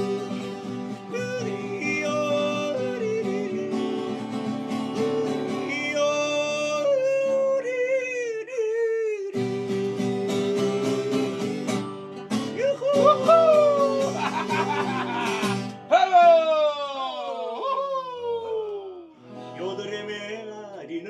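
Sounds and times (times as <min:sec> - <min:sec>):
strummed acoustic guitar: 0:00.0 - 0:07.7, 0:09.3 - 0:15.9, 0:19.2 - 0:20.7
man yodeling: 0:00.0 - 0:11.6, 0:12.4 - 0:20.6.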